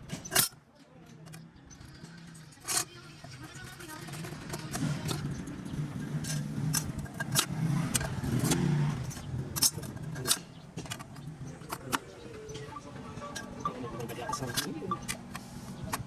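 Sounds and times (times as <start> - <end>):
sharp metallic clinks and knocks: 0.0 - 16.0
engine running steadily: 3.4 - 16.0.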